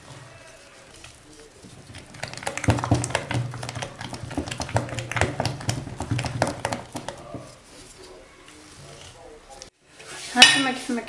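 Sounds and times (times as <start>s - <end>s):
utensil stirring batter in bowl: 0.0s - 8.3s.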